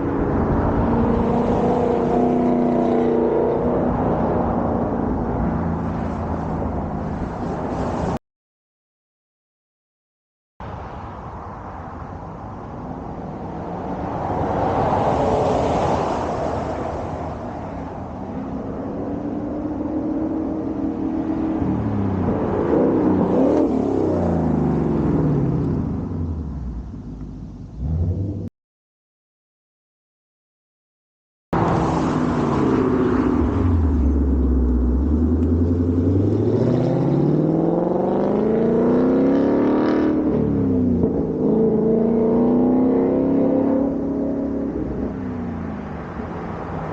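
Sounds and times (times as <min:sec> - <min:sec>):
road noise: 0:00.0 - 0:08.2, 0:10.6 - 0:28.5, 0:31.5 - 0:46.9
car driving past: 0:13.7 - 0:18.1, 0:31.6 - 0:46.9.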